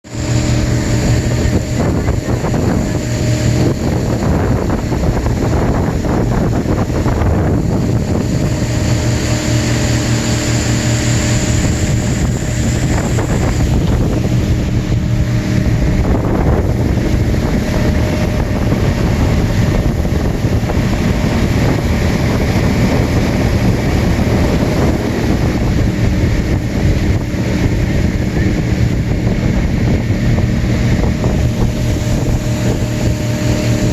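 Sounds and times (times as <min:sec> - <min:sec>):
motorboat engine running: 0:00.0 - 0:33.9
wind buffeting microphone: 0:00.0 - 0:33.9.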